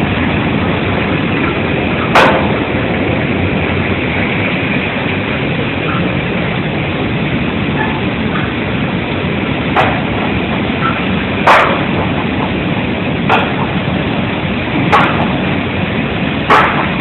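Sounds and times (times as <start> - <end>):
dryer running mechanically: 0.0 - 17.0.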